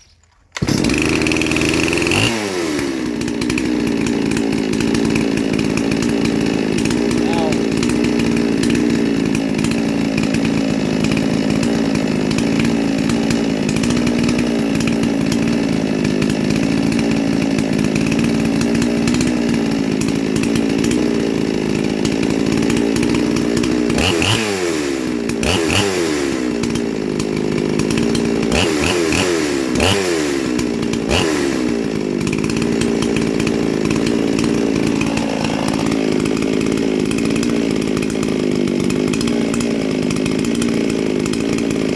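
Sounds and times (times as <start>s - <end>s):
chainsaw idling and revving: 0.6s - 41.9s.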